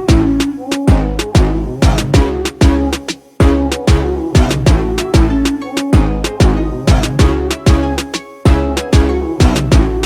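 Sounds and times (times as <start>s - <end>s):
upbeat music with kick drums: 0.0s - 10.0s.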